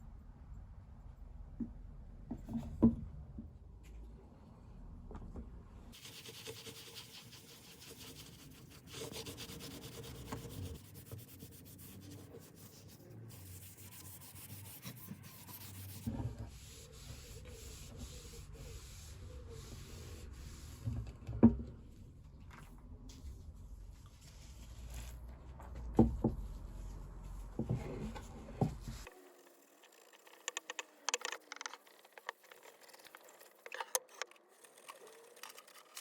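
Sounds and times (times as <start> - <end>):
sandpaper rubbing on wood: 6.0 - 20.8.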